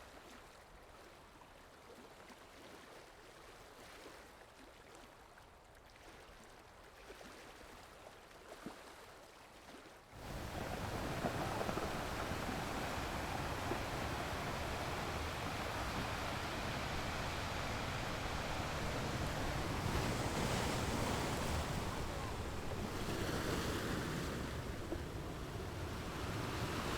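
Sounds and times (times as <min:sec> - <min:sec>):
faint running water: 0:00.1 - 0:26.9
small water splashes: 0:00.1 - 0:26.9
ocean surf washing: 0:10.2 - 0:26.9.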